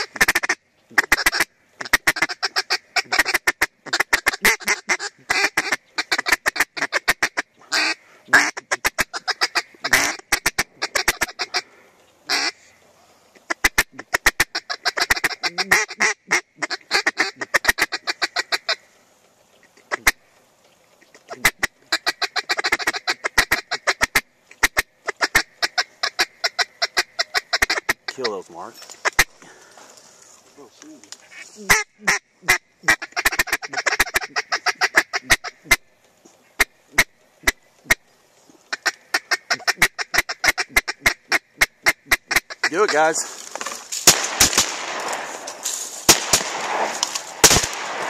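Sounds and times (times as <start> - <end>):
duck quacking rapidly: 0.0 - 11.6, 12.3 - 12.6, 13.5 - 18.8, 21.2 - 28.4, 29.0 - 29.3, 31.3 - 35.8, 36.6 - 38.0, 38.7 - 43.2.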